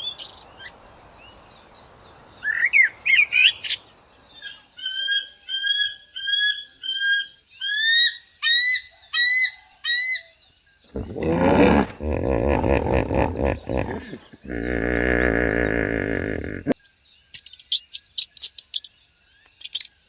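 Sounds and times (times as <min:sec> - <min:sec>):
low rough animal call: 0:10.9 - 0:16.8.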